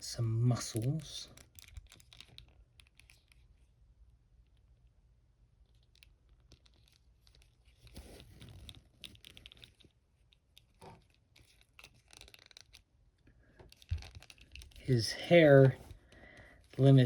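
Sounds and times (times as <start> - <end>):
plastic crinkling: 10.6 - 12.8, 13.5 - 16.9.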